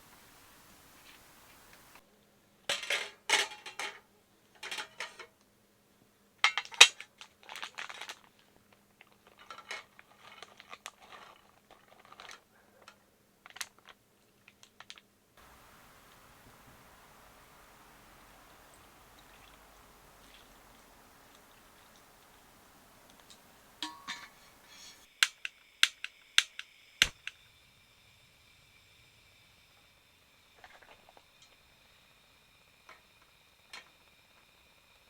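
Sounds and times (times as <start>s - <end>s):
faint steady hum: 0.0s - 2.4s, 15.4s - 25.1s
dishes and utensils clinking: 17.5s - 25.1s.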